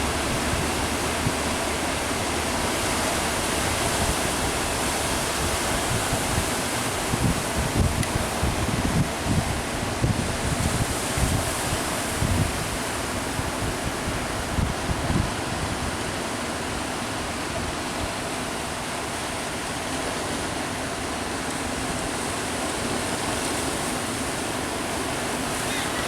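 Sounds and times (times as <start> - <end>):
wind buffeting the microphone: 0.0 - 18.2
ocean surf roaring: 0.0 - 26.0.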